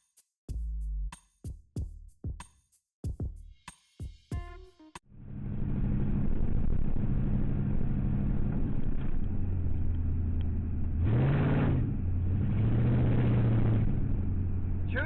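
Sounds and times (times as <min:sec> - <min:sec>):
car engine: 0:05.2 - 0:15.0
road noise: 0:05.5 - 0:15.0.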